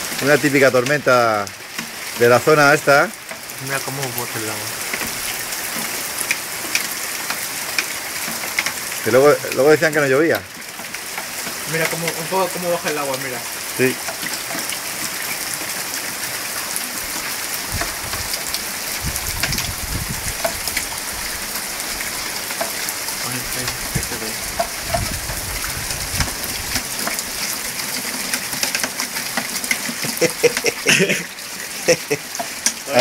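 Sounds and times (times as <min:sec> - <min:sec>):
heavy rain on paving: 0:00.0 - 0:33.0.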